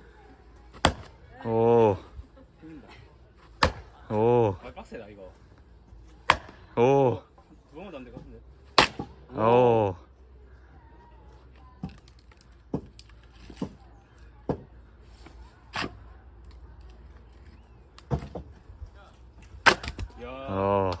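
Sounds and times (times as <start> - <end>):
axe striking log: 0.7 - 1.2, 3.6 - 4.0, 6.2 - 6.7, 8.7 - 9.2, 19.6 - 20.2.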